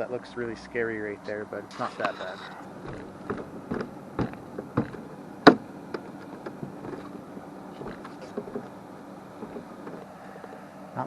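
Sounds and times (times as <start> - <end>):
low steady background noise: 0.0 - 11.0
scattered knocks and clicks: 1.7 - 10.6.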